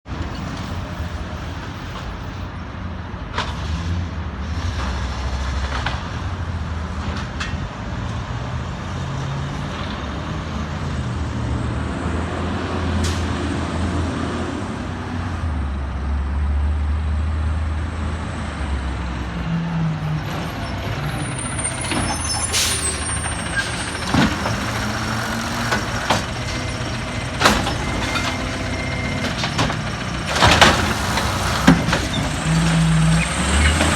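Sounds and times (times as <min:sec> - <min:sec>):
truck diesel engine running: 0:20.0 - 0:33.9
air brake hiss and squeal: 0:20.5 - 0:25.6.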